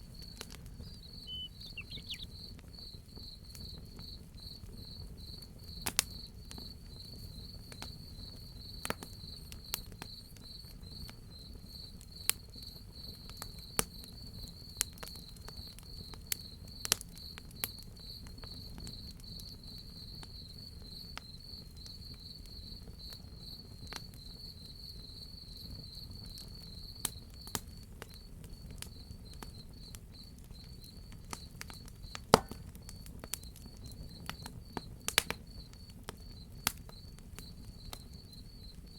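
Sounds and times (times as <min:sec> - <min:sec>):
wood fire crackling: 0:00.0 - 0:02.6, 0:25.6 - 0:38.9
crickets chirping: 0:00.0 - 0:05.8, 0:18.0 - 0:38.9.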